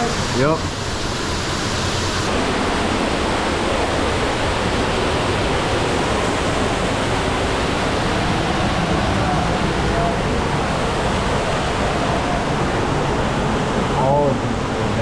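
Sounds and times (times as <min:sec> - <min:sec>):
running water in a cave stream: 0:00.0 - 0:15.0.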